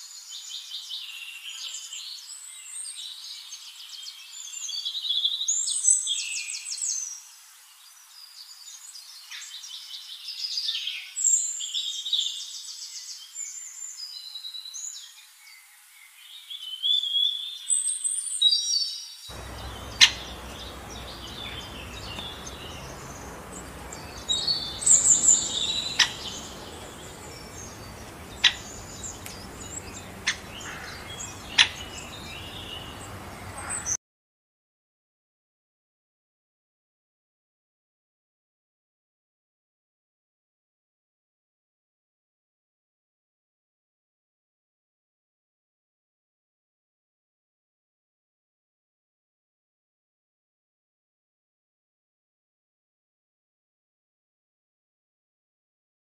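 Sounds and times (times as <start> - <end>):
birds chirping and trilling: 7.8 - 34.0
steady hiss: 19.3 - 33.8.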